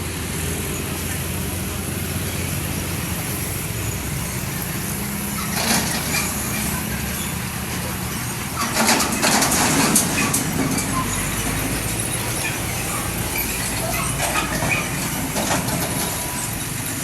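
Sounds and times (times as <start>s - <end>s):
vehicle engines rumbling: 0.0s - 17.0s
rattling clatter: 5.3s - 17.0s.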